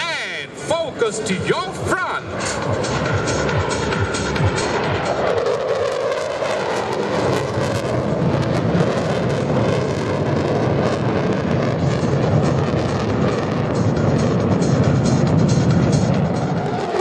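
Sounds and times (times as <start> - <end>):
jet aircraft flypast: 0.0 - 17.0
background music: 0.6 - 5.8, 11.8 - 17.0.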